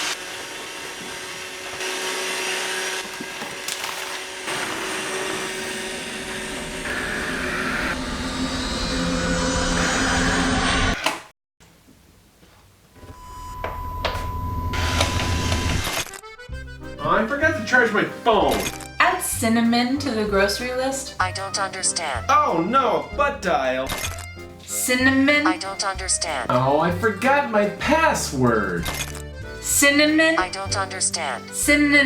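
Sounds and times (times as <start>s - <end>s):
robot vacuum whirring: 0.0s - 9.1s, 14.8s - 16.2s
low hum: 5.8s - 11.0s.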